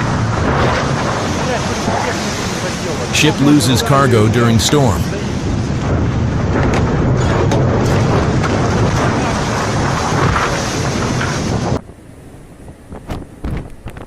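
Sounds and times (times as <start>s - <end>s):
wind buffeting microphone: 5.2s - 14.0s.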